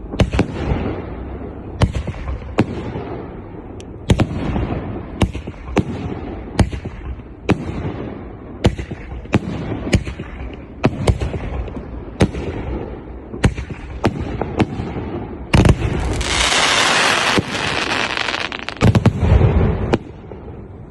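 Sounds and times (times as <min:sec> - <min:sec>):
firework shots: 0:00.0 - 0:20.9
firework crackling hiss: 0:15.6 - 0:19.0.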